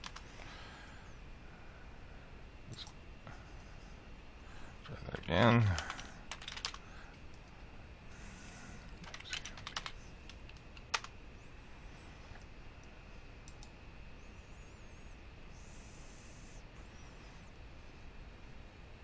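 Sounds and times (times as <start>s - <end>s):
keyboard typing: 0.0s - 0.3s, 5.6s - 7.5s, 8.9s - 11.1s, 13.4s - 13.7s.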